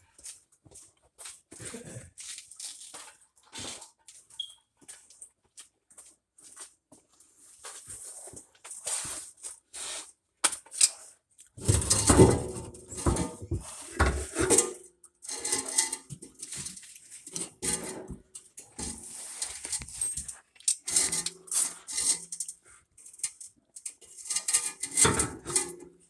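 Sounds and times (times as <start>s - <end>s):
metal clanking and scraping: 11.6s - 26.0s.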